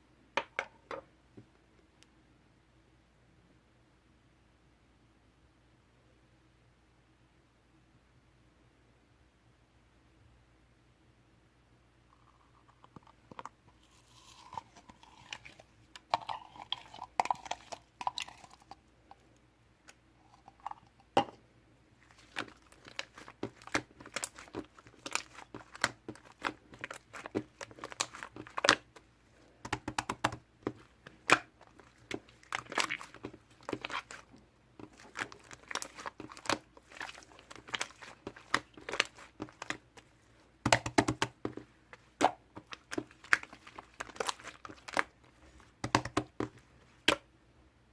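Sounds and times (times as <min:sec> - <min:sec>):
slime clicking and popping: 0:22.2 - 0:29.0, 0:29.6 - 0:39.9, 0:40.7 - 0:41.6, 0:45.8 - 0:47.2.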